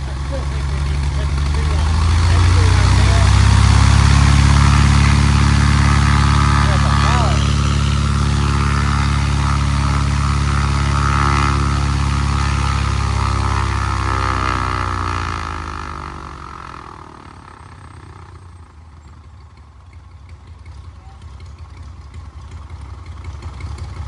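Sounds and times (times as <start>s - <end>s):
airplane engine running: 0.0s - 18.4s.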